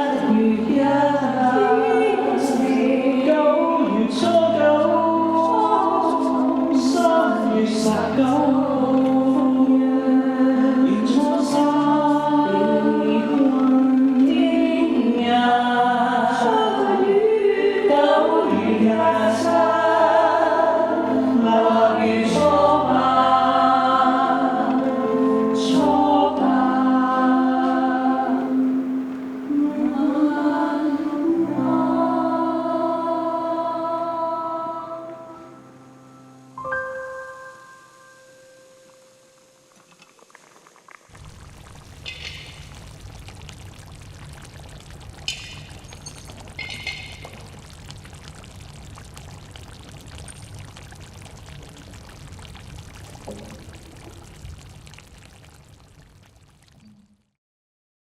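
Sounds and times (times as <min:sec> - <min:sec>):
choral singing: 0:00.0 - 0:36.2.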